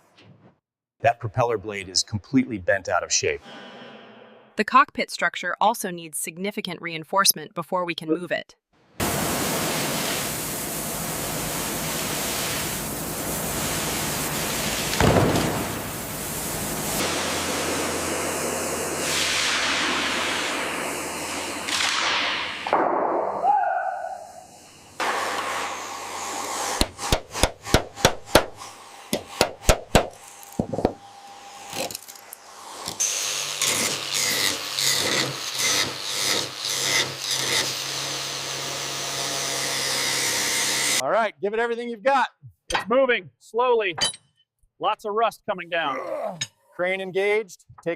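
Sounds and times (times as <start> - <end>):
loud rushing hiss: 9.0 - 21.8
sharp knocks: 26.8 - 31.0.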